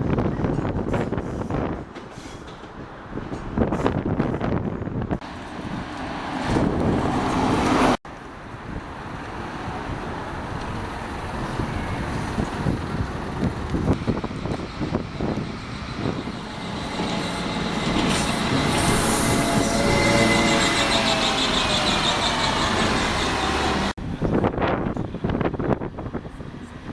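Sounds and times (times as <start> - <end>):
heavy vehicle running: 12.4 - 24.0.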